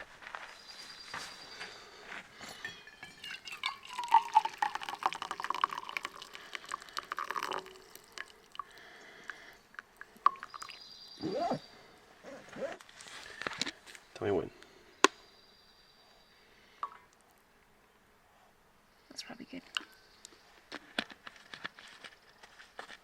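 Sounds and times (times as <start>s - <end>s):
coffee pouring into mug: 2.7s - 11.6s.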